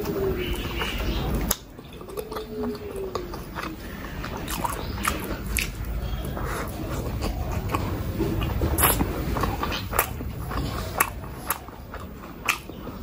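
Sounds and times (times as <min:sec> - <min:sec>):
close chewing: 0:00.0 - 0:13.0.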